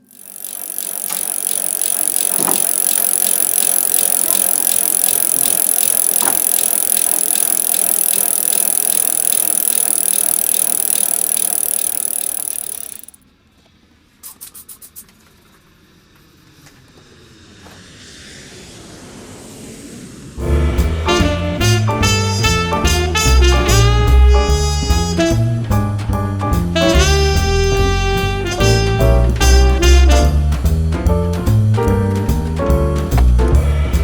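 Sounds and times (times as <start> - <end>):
quick ticks: 0.0 - 13.1
bicycle freewheel clicking: 0.0 - 13.2, 22.0 - 25.5, 26.8 - 30.8.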